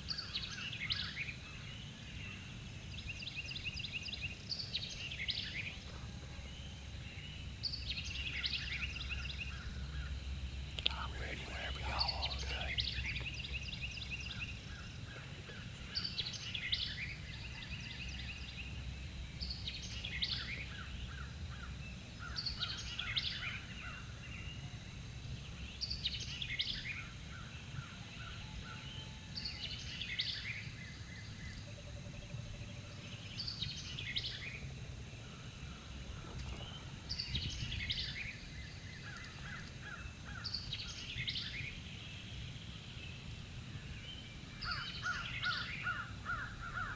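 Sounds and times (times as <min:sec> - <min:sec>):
songbird singing: 0:10.8 - 0:18.8, 0:32.5 - 0:46.9.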